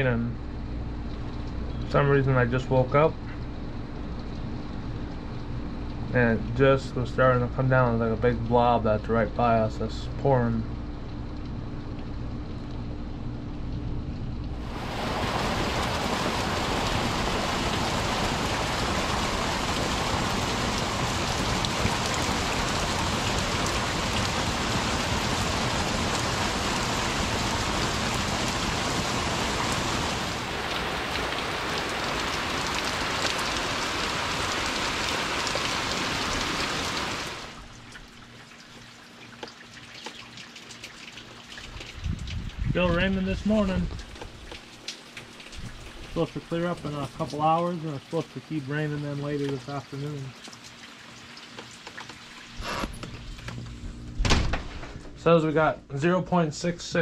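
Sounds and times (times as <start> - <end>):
heavy rain pouring: 14.5 - 38.8, 41.7 - 52.9.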